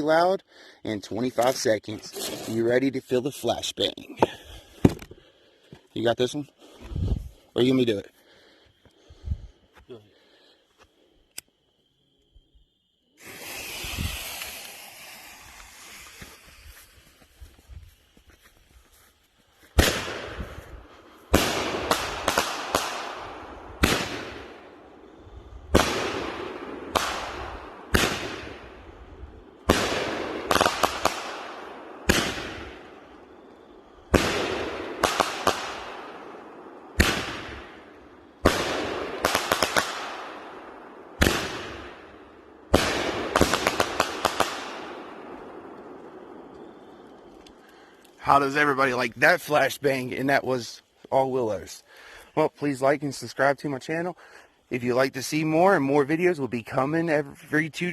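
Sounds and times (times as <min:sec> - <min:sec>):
firework crackling: 0:13.0 - 0:18.2, 0:19.7 - 0:25.0, 0:25.7 - 0:49.6
firework bangs: 0:13.2 - 0:17.4, 0:19.8 - 0:24.8, 0:25.7 - 0:47.2.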